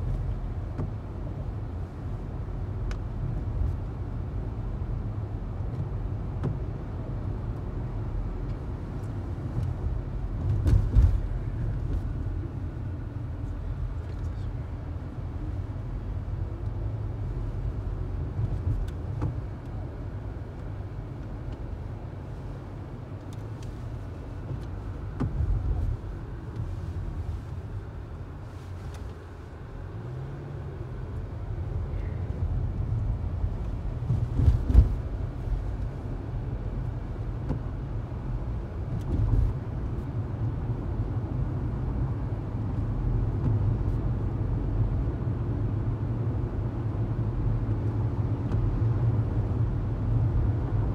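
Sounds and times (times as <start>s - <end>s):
vehicle rumble: 0.0s - 50.9s.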